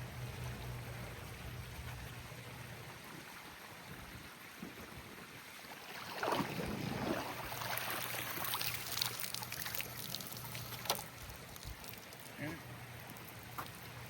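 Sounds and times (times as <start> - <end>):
pool water sloshing and trickling: 0.0 - 14.0.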